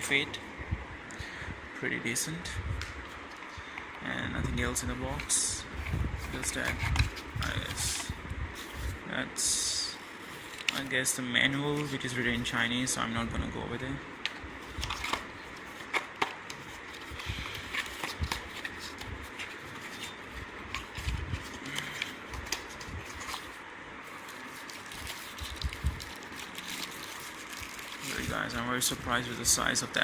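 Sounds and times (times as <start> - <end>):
paper and plastic rustling: 5.0 - 9.0, 9.8 - 12.6, 14.2 - 30.0.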